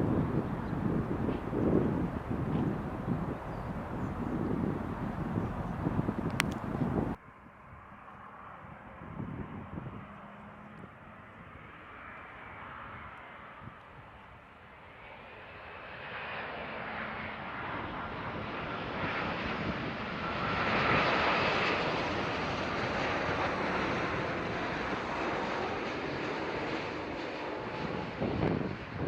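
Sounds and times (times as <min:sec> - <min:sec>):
wind buffeting microphone: 0:00.0 - 0:07.9, 0:08.6 - 0:12.0, 0:17.6 - 0:29.0
jet airliner passing: 0:00.0 - 0:29.0.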